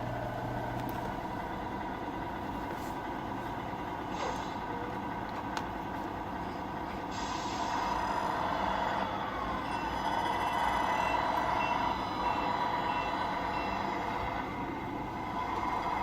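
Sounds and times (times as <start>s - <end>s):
model truck running hum: 0.0s - 16.0s
reversing beeper short high beeps: 9.7s - 14.1s.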